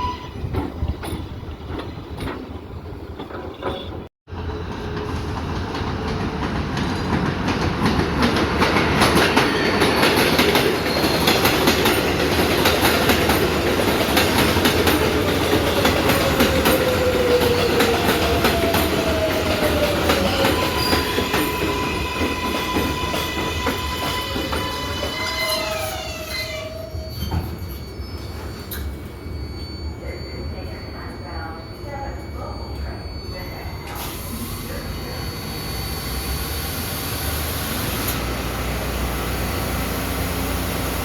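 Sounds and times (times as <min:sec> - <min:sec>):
train wheels clattering over rails: 0:00.4 - 0:25.0
steady multi-tone whine: 0:28.7 - 0:38.1.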